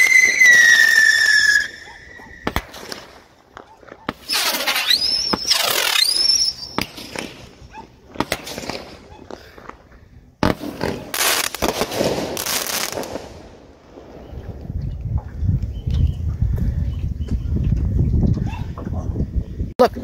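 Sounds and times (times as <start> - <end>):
firework whistles rising: 0.0 - 3.3, 4.1 - 7.6
hissing crackling firework burst: 0.0 - 3.3, 4.1 - 7.6, 10.4 - 14.2
firework cracks: 0.0 - 9.8, 10.4 - 14.3.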